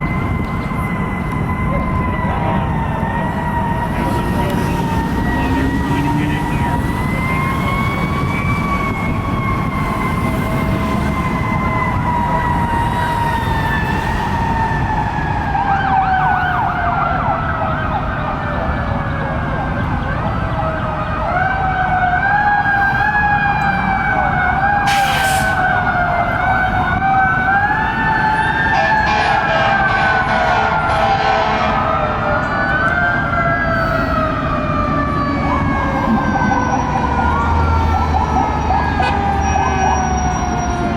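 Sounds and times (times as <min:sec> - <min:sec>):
engines and traffic rumble: 0:00.0 - 0:40.9
fast warbling siren: 0:00.0 - 0:40.9
fire engine siren wailing: 0:00.0 - 0:40.9.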